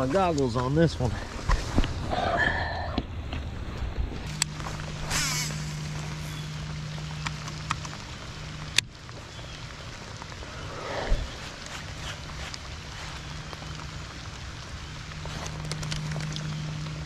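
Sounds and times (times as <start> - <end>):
rain falling on water: 0.0 - 2.2, 2.9 - 17.0
low hum: 1.1 - 17.0.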